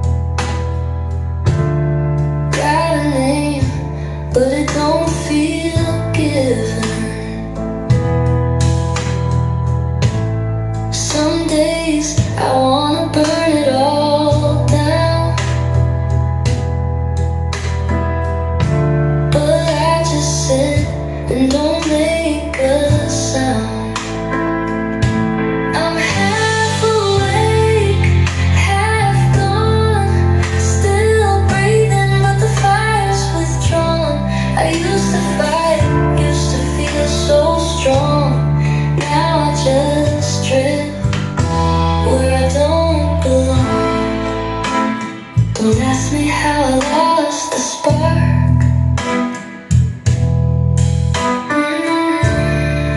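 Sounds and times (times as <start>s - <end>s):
sustained chords and bass: 0.0s - 47.2s, 47.8s - 51.4s, 52.0s - 52.9s
woman singing: 2.5s - 7.6s, 10.9s - 15.9s, 19.3s - 24.3s, 25.7s - 49.6s, 51.4s - 52.9s.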